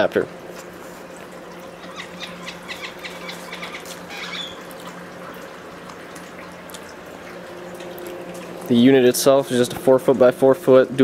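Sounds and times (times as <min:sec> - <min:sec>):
steady low hum: 0:00.0 - 0:11.0
water trickling: 0:00.0 - 0:11.0
bird chirping rapidly: 0:01.9 - 0:04.6.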